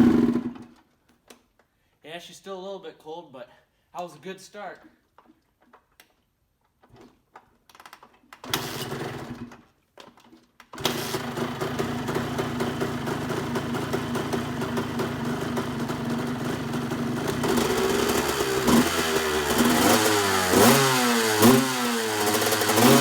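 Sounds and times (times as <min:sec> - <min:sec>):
two-stroke engine running: 0:00.0 - 0:00.6, 0:10.8 - 0:23.0.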